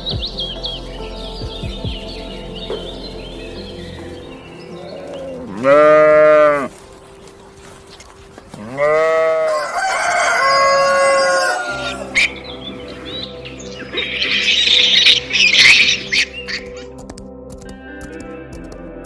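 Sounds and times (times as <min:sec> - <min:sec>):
rooster crowing: 0:09.1 - 0:12.2.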